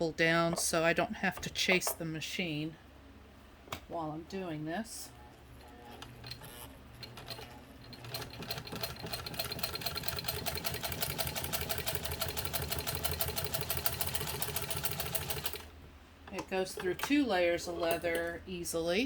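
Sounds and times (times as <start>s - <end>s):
sewing machine stitching leather: 5.5s - 15.7s.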